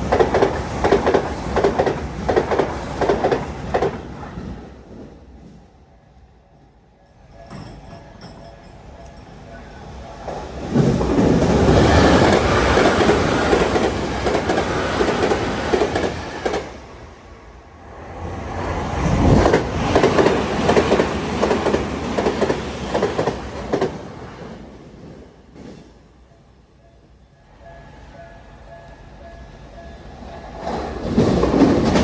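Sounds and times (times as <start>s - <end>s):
trains passing at high speed: 0.0s - 32.0s.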